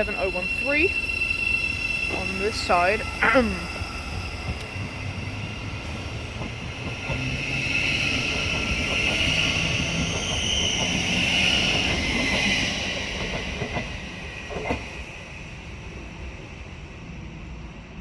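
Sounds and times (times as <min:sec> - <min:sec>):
electric train rumbling and hissing: 0:00.0 - 0:18.0.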